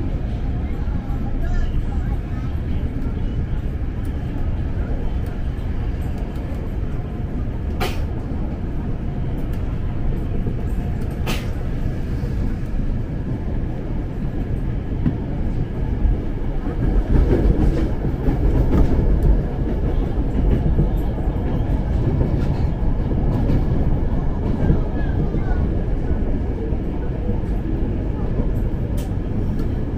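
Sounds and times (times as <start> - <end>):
train wheels rumbling on track: 0.0 - 29.9.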